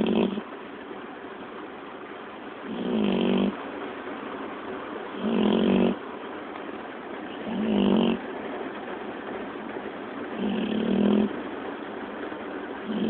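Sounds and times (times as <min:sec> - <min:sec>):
puppy snoring: 0:00.0 - 0:00.5, 0:02.6 - 0:03.6, 0:05.2 - 0:06.0, 0:07.3 - 0:08.2, 0:10.3 - 0:11.4, 0:12.8 - 0:13.0.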